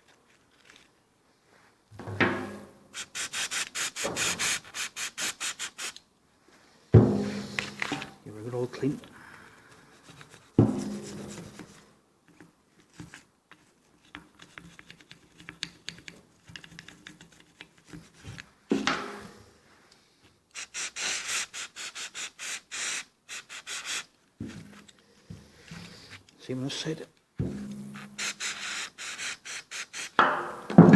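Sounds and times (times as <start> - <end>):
brush scrubbing metal: 3.0 - 6.0, 10.1 - 11.6, 20.6 - 24.1, 27.4 - 30.2
sharp knock: 30.2 - 30.9.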